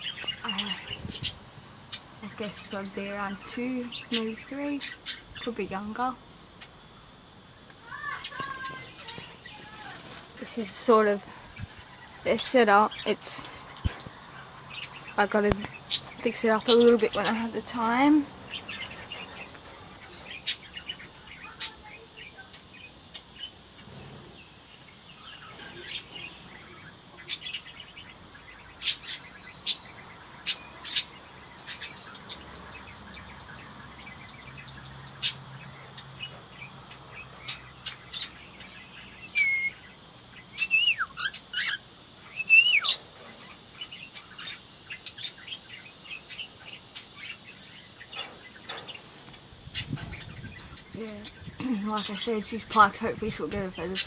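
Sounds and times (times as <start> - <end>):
high insect drone: 0.0 - 54.0
swooping whistled bird calls: 25.1 - 49.0
cockatiels chirping: 37.4 - 49.1.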